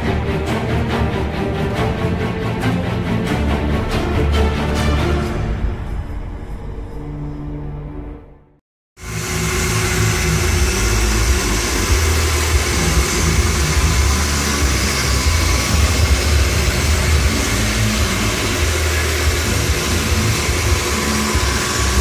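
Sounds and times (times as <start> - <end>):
music: 0.0 - 22.0
milling machine running: 9.0 - 22.0.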